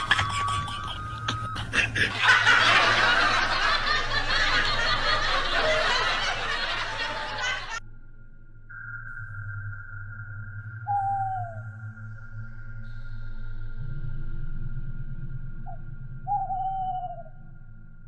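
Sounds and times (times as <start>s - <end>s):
people laughing together: 0.0s - 7.8s.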